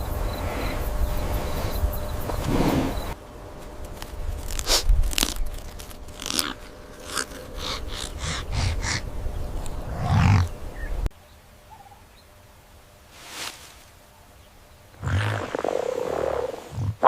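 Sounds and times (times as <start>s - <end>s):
animal crunching food: 4.0s - 8.1s.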